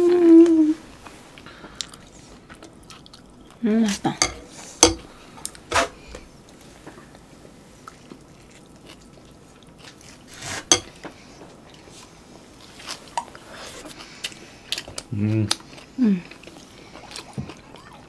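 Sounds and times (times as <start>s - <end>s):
mouth chewing soft food: 1.3s - 3.6s, 7.8s - 10.6s, 11.6s - 18.0s.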